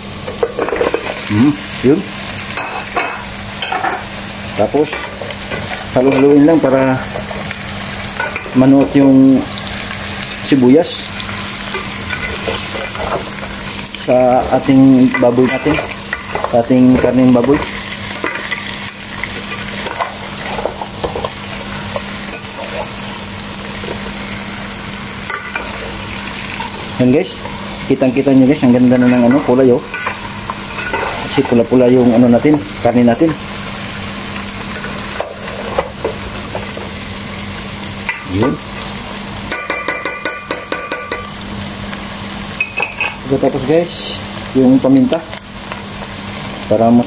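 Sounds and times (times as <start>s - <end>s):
pork and onions sizzling: 0.0s - 47.0s
spoon scraping against pot: 28.8s - 31.6s.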